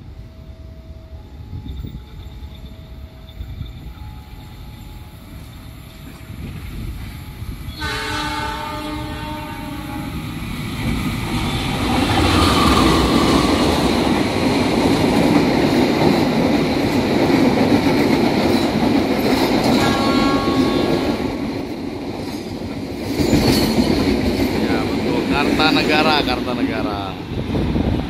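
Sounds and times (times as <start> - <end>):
train rumbling past: 0.0 - 28.0
train horn: 7.7 - 10.3, 19.7 - 21.2.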